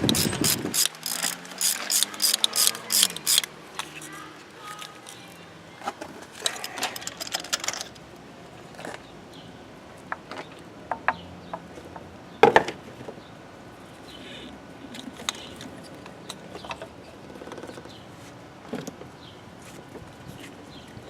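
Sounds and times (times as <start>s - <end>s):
tools and parts clicking: 0.0s - 4.0s, 5.9s - 8.0s.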